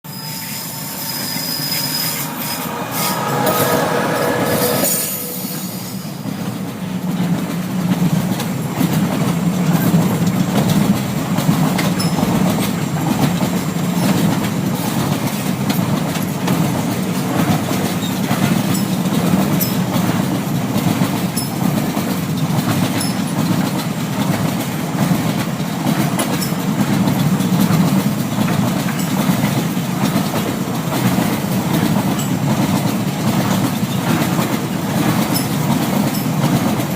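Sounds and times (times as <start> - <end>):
train wheels squealing: 0.1 - 6.6, 11.8 - 13.0, 17.8 - 20.2, 21.3 - 21.7, 22.9 - 23.4, 32.1 - 32.5, 35.2 - 36.6
train low rumble: 0.1 - 36.9.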